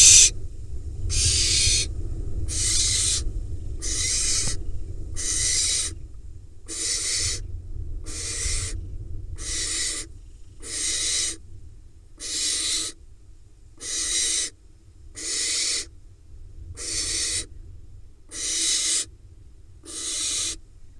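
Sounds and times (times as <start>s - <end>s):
owl nestling hissing calls: 0.0s - 0.3s, 1.1s - 6.0s, 6.6s - 7.4s, 8.0s - 8.8s, 9.4s - 11.4s, 12.2s - 13.0s, 13.8s - 15.9s, 16.8s - 17.5s, 18.3s - 19.1s, 19.8s - 20.6s.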